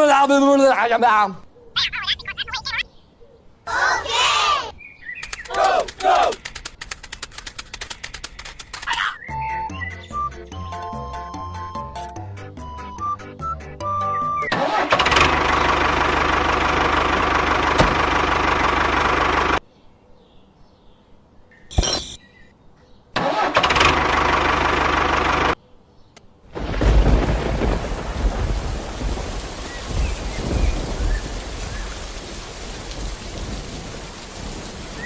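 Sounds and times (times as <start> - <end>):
small tractor engine running: 14.6 - 19.6, 23.2 - 25.6
rumbling rain-like noise: 26.5 - 35.0.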